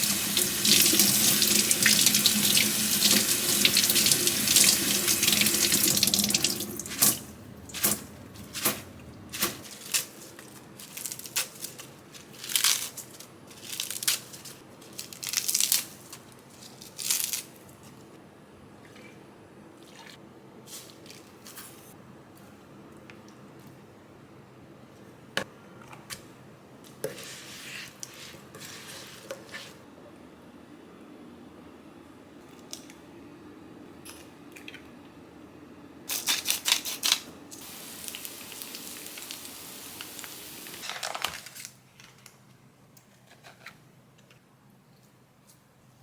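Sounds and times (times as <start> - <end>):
steady hiss: 37.5 - 40.9.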